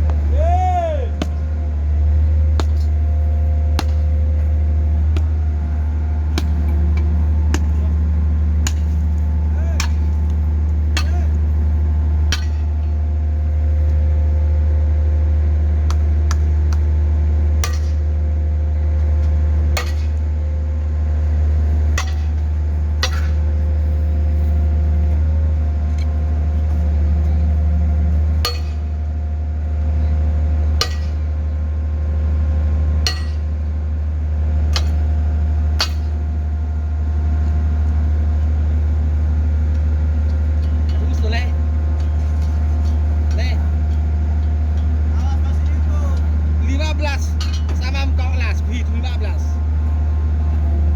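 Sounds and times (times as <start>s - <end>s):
loud low engine drone: 0.0s - 50.9s
sharp metallic clanks: 23.0s - 23.4s, 28.4s - 28.9s, 30.8s - 31.2s, 33.0s - 33.6s, 47.3s - 48.6s.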